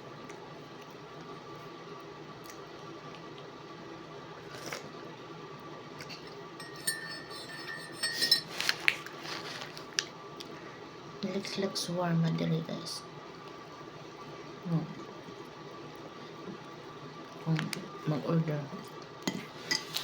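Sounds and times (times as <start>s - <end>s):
low background hum: 0.0s - 20.0s
tableware clinking: 6.6s - 8.6s.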